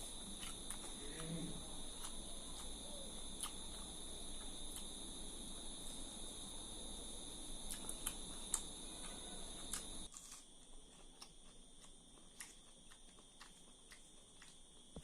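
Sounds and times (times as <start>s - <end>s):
clicks and smacks of eating: 0.0s - 5.0s, 7.6s - 15.0s
high-pitched background whine: 0.0s - 10.1s.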